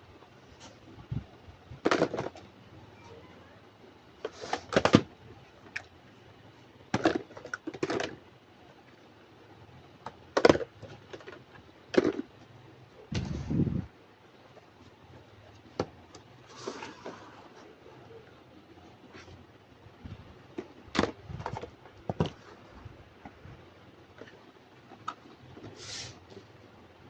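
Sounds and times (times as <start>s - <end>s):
plastic toys clicking and knocking: 1.8s - 2.4s, 6.9s - 8.3s, 10.0s - 12.4s.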